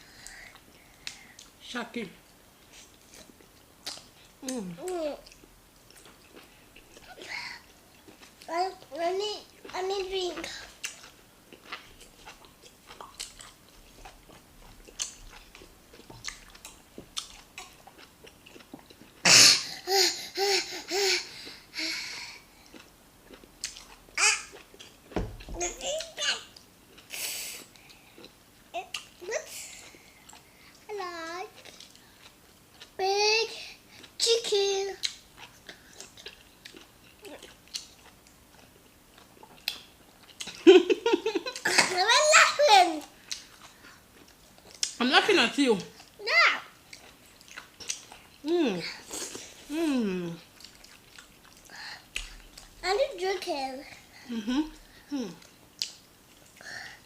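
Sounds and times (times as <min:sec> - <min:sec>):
people chewing: 0:02.6 - 0:19.3, 0:21.3 - 0:33.0, 0:35.0 - 0:42.3, 0:43.0 - 0:45.0, 0:46.8 - 0:57.0
child's pitched voice sounds: 0:08.5 - 0:10.5, 0:25.6 - 0:26.5, 0:41.7 - 0:43.1, 0:46.2 - 0:46.7, 0:52.8 - 0:53.9
young child's breathy outburst: 0:19.5 - 0:22.4.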